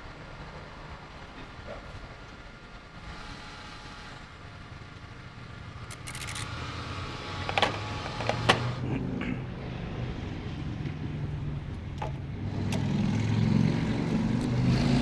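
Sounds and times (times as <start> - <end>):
engine running low: 0.0 - 15.0
high clicks: 5.9 - 6.5.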